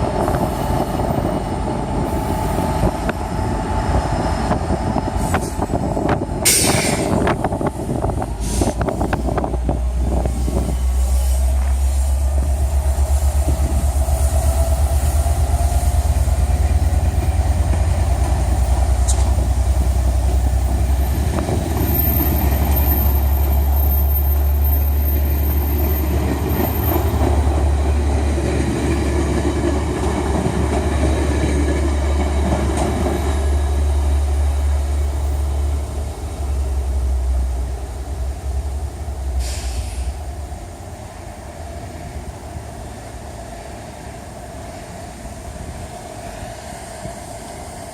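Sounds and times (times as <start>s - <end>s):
train rumbling on rails: 0.0s - 47.9s.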